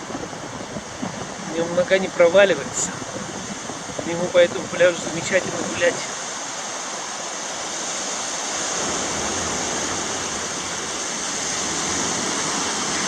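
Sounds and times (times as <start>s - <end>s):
surf washing on a beach: 0.0s - 13.0s.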